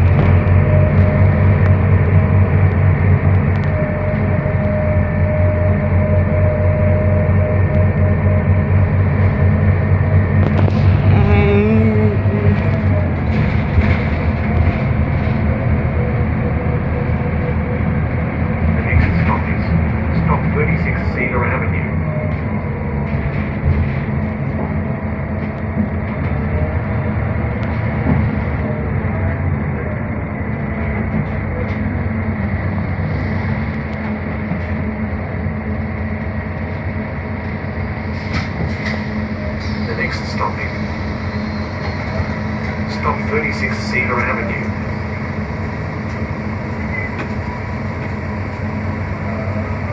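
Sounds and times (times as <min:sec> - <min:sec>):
bus rumble and road noise: 0:00.0 - 0:49.9.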